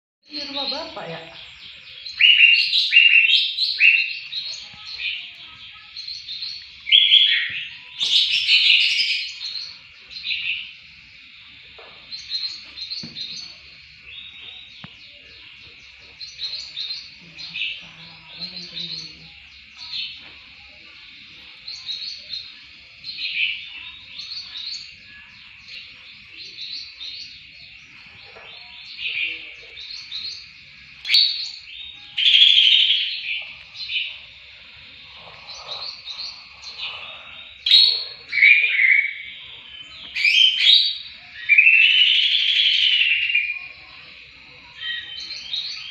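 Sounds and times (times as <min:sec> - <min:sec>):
bird singing chirps and whistles: 0:00.3 - 0:05.2, 0:06.0 - 0:10.8, 0:26.4 - 0:34.2, 0:35.4 - 0:43.9, 0:44.7 - 0:45.9.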